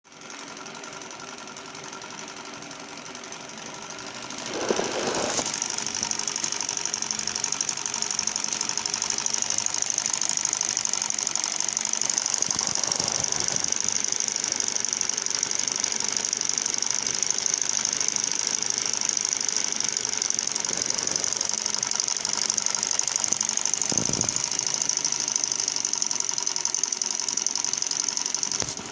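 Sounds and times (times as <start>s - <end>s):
rapid mechanical clatter: 0.1s - 28.9s.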